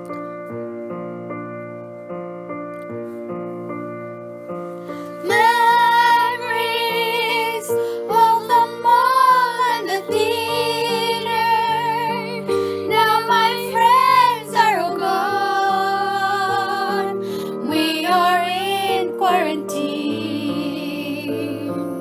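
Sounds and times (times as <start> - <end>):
child singing a slow ballad: 5.2 - 12.3, 12.9 - 22.0.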